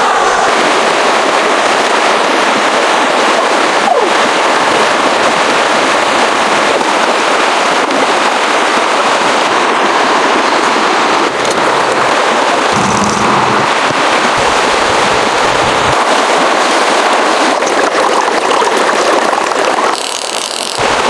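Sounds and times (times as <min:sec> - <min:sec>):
dense crackling: 0:11.3 - 0:16.4.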